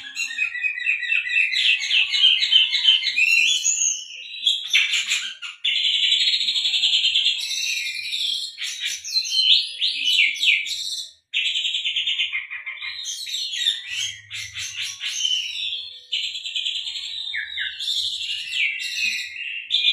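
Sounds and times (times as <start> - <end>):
magpie-robin singing: 0.0 - 19.9.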